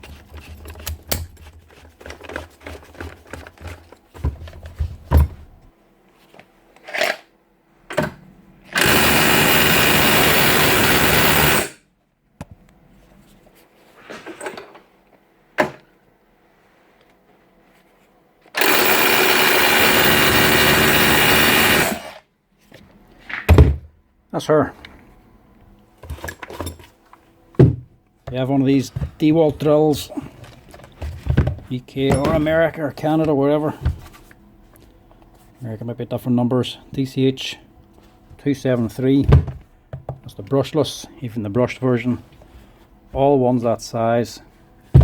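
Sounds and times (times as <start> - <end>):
cordless drill running: 8.8 - 11.8, 18.6 - 22.2.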